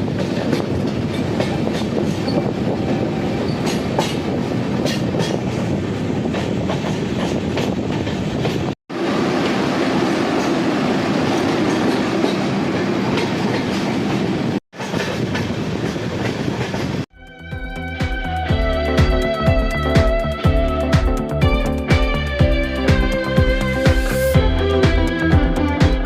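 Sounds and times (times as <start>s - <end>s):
train wheels rumbling on rails: 0.0s - 17.1s
music: 17.1s - 26.0s.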